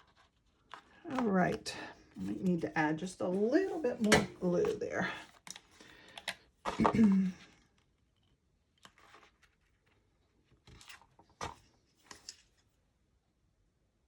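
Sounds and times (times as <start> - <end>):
paper rustling: 0.0 - 5.8, 8.8 - 12.7.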